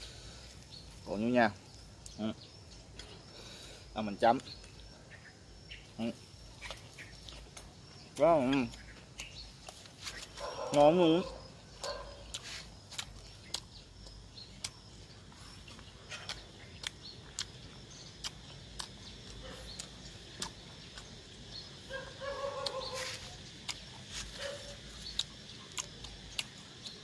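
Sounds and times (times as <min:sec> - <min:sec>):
person chewing and smacking: 0:06.6 - 0:27.0.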